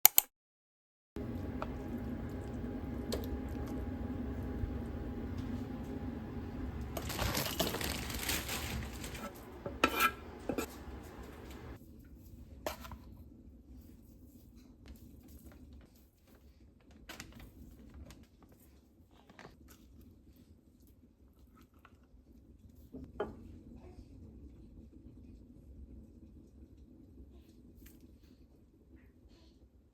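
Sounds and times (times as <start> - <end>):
packaging rustling: 6.4 - 11.8
dishes and utensils clinking: 6.6 - 11.8.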